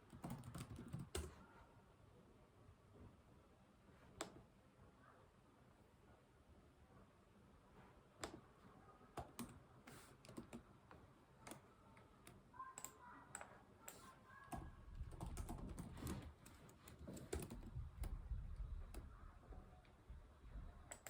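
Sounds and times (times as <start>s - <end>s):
computer keyboard typing: 0.0s - 1.4s, 9.2s - 10.7s, 12.2s - 19.2s.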